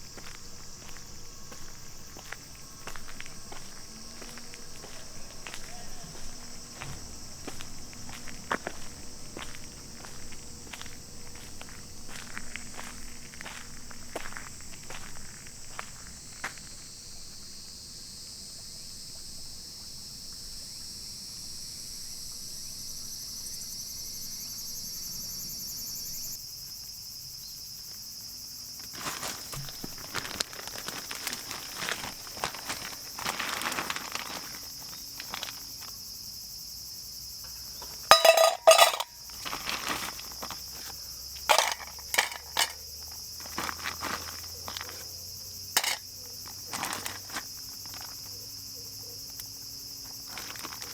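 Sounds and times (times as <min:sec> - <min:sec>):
insects chirping chorus: 0:00.0 - 0:50.9
handling knocks and clicks: 0:37.8 - 0:40.6, 0:41.5 - 0:42.8, 0:45.8 - 0:46.0
short clatter: 0:41.5 - 0:42.8, 0:45.8 - 0:46.0.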